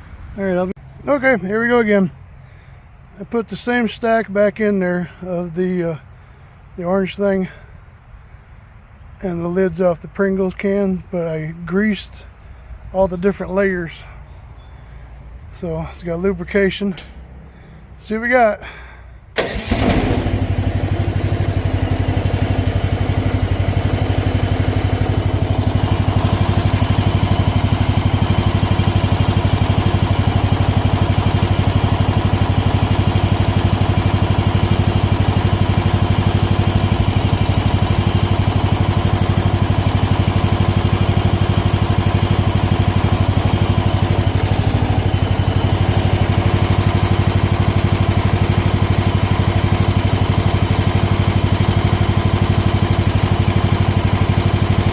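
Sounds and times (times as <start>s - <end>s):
small excavator engine humming: 12.4s - 18.0s, 18.6s - 54.9s.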